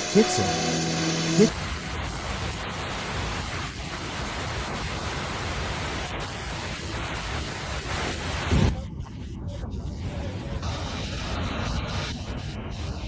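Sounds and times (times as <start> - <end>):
rushing water: 1.4 - 8.8.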